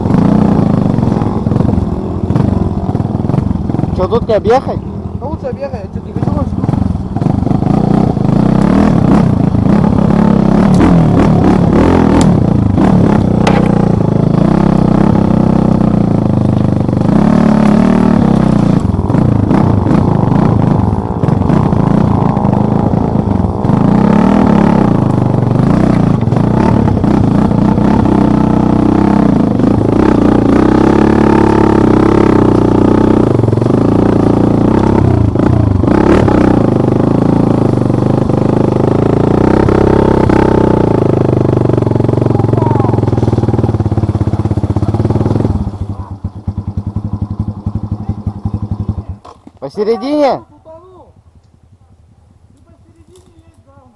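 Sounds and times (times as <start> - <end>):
motorcycle engine revving: 0.0 - 53.9
bike knocking and clattering: 12.1 - 14.2.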